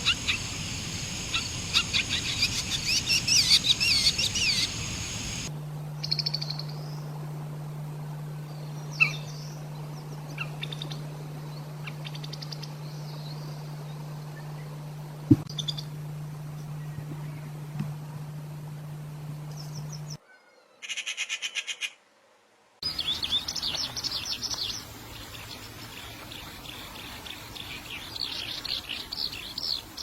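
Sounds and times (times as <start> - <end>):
bird chirps and trills: 0.0 - 7.1, 8.4 - 14.8, 15.4 - 17.7, 22.8 - 30.0
songbird singing: 0.0 - 7.2, 8.1 - 21.8, 22.8 - 30.0
steady low hum: 0.0 - 20.2.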